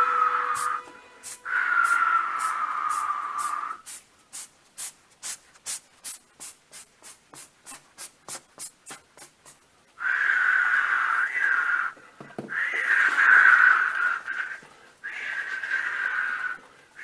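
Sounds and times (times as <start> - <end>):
loud raspy tone: 0.0 - 3.8, 10.0 - 16.6
short hissing puffs: 0.6 - 10.2.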